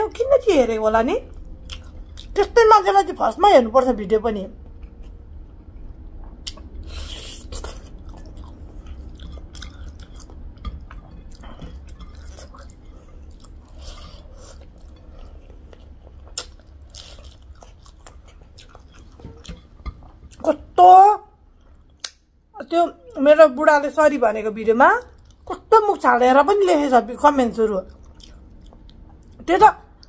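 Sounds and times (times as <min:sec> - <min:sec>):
steady low hum: 0:00.0 - 0:30.0
person chewing with wet smacks: 0:01.3 - 0:02.4, 0:04.6 - 0:20.4, 0:21.6 - 0:22.2, 0:25.1 - 0:25.5, 0:27.9 - 0:30.0.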